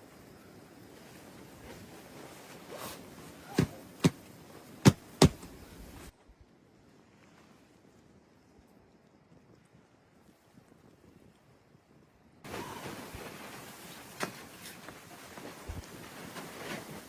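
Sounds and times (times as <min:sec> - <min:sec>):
steady hiss: 0:00.0 - 0:06.1, 0:12.5 - 0:17.0
sharp knocks: 0:03.5 - 0:04.2, 0:04.8 - 0:05.5.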